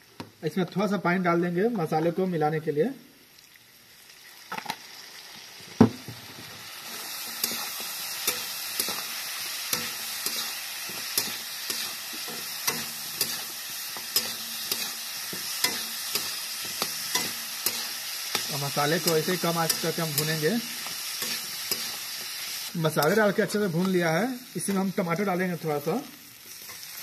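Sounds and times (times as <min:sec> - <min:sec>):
food sizzling in a pan: 0:03.0 - 0:27.0
spoon scraping a pan: 0:06.9 - 0:23.3.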